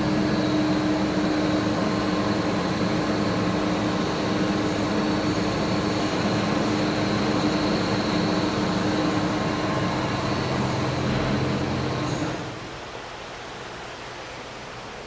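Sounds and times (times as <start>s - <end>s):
air compressor humming and whining: 0.0s - 13.0s.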